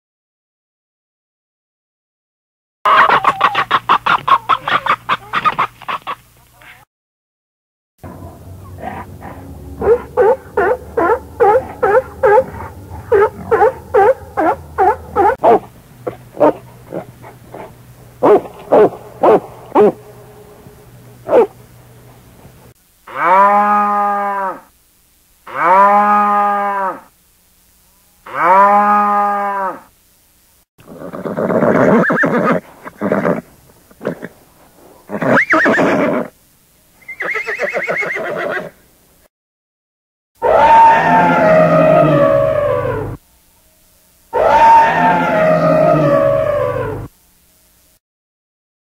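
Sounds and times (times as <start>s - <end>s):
cow mooing: 8.0s - 15.4s, 16.1s - 21.6s, 23.1s - 24.6s, 25.5s - 27.1s, 28.3s - 29.8s, 40.4s - 43.2s
horse whinnying: 30.8s - 33.4s, 35.1s - 36.3s, 37.0s - 38.8s.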